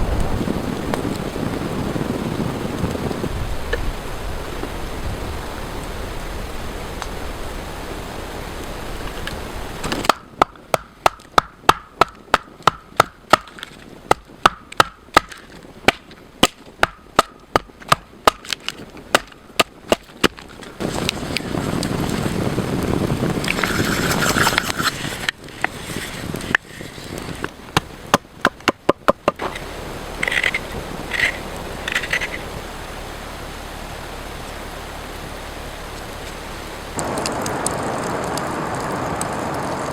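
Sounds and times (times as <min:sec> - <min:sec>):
steady hiss: 0:00.0 - 0:39.9
blade chopping on wood: 0:09.8 - 0:20.7, 0:27.7 - 0:29.6.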